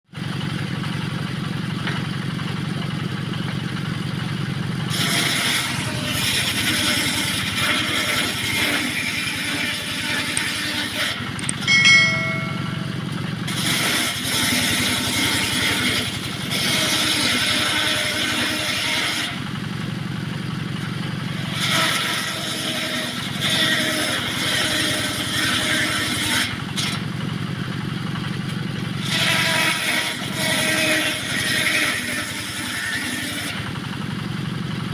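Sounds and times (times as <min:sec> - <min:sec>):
engine running steadily: 0:00.1 - 0:34.9
circular saw cutting wood: 0:04.8 - 0:19.4, 0:21.3 - 0:27.0, 0:29.0 - 0:33.8.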